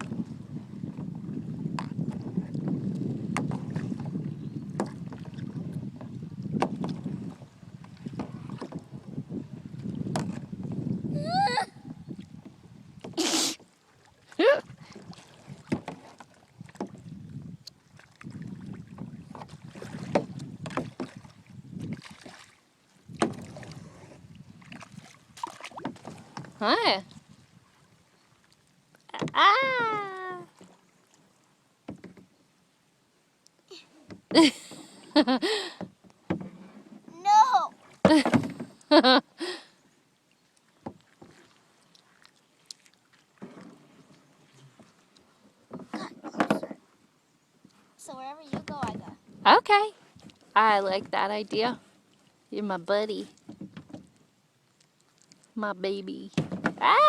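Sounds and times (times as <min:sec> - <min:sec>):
paddle strokes in water: 0:00.0 - 0:55.6
person crying out: 0:11.1 - 0:11.8, 0:29.4 - 0:30.5.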